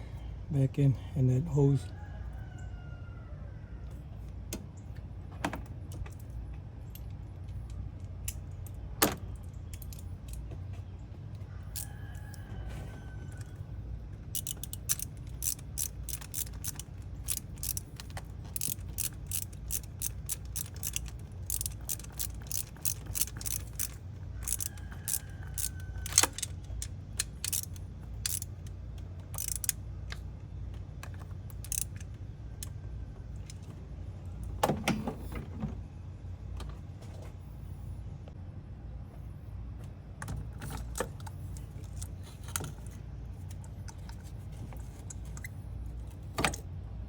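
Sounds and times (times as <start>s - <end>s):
steady low hum: 0.0s - 47.0s
socket ratchet clicking: 14.3s - 30.2s, 31.0s - 32.8s.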